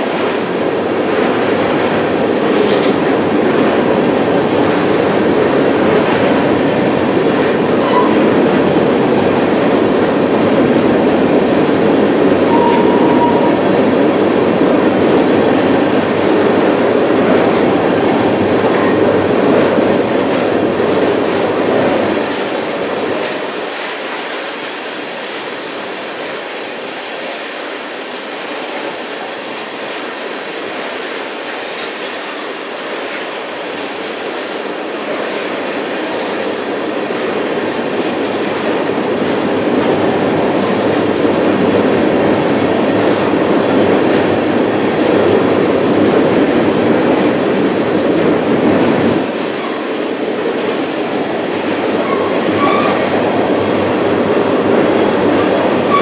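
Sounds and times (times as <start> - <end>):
freight train wheels clattering: 0.0 - 56.0
high wheel squeal: 7.8 - 8.2, 12.5 - 13.6.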